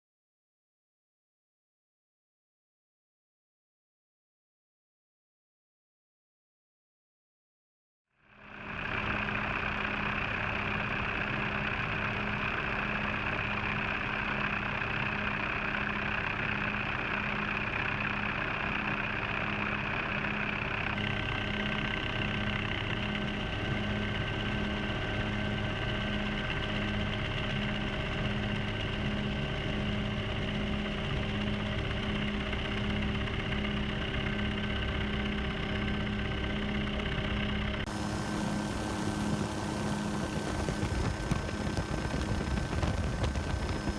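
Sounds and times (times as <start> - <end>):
helicopter engine and rotor: 8.4 - 43.9.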